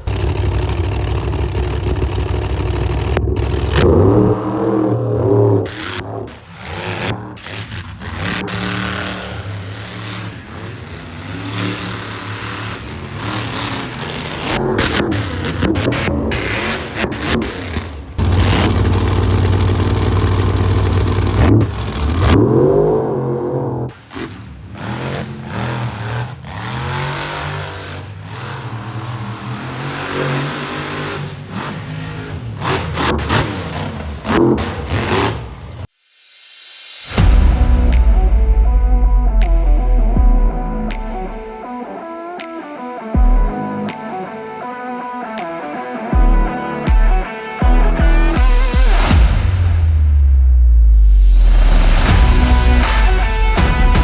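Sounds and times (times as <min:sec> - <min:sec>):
truck engine revving: 0:00.0 - 0:35.9, 0:37.2 - 0:54.0.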